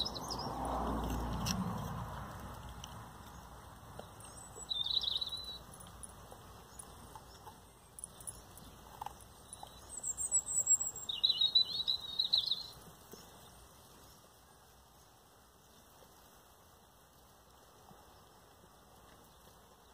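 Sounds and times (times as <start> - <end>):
songbirds twittering: 0.0 - 1.2, 3.2 - 16.3.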